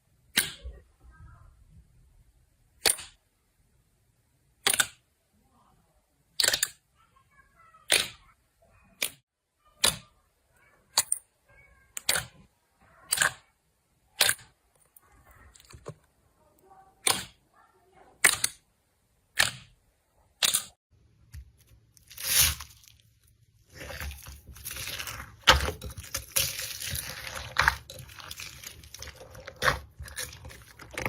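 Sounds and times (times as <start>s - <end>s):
slime squeaks: 22.0s - 31.0s.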